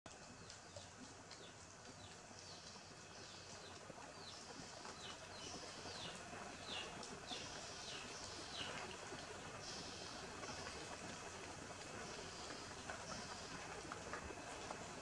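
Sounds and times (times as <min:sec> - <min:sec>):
small birds chirping: 0:00.4 - 0:08.8.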